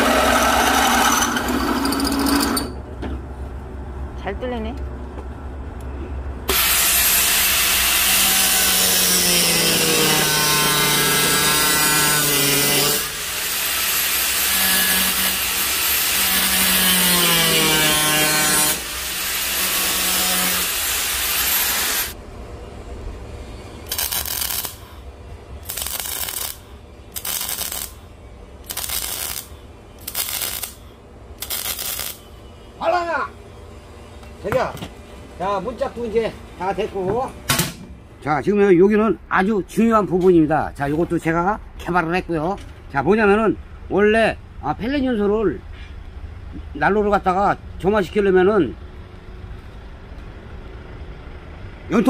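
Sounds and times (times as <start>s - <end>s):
power tool grinding steel: 0.0s - 2.8s, 6.5s - 22.2s.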